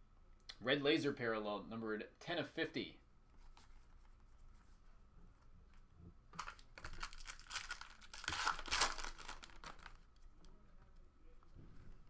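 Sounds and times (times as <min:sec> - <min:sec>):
plastic wrapper tearing and crinkling: 0:06.4 - 0:10.2.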